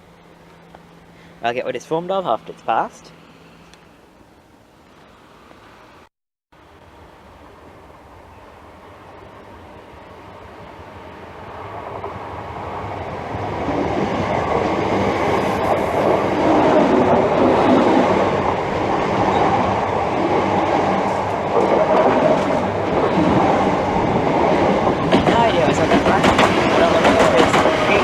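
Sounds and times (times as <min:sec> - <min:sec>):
train wheels on rail: 0:07.3 - 0:28.0.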